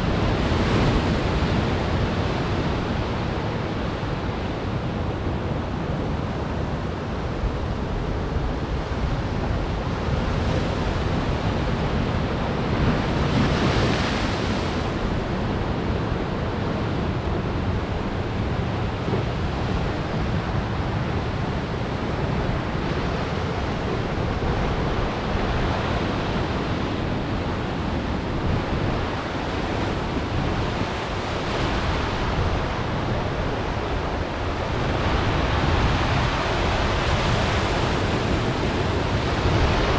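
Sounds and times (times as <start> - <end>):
wind buffeting the microphone: 0.0 - 39.9
waves crashing on rocks: 9.0 - 39.9.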